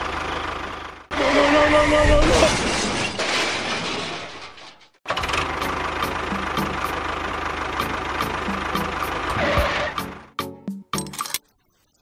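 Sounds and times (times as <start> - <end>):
tractor engine idling: 0.0 - 1.7, 5.1 - 10.6.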